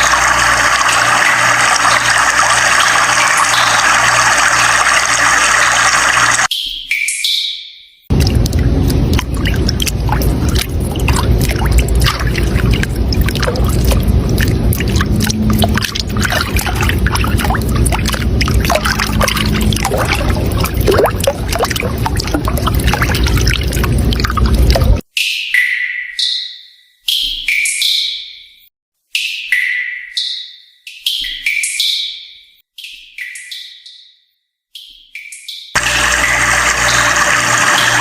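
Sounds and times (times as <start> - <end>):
running water splashing: 0.0 - 6.5, 8.1 - 25.0, 35.8 - 38.0.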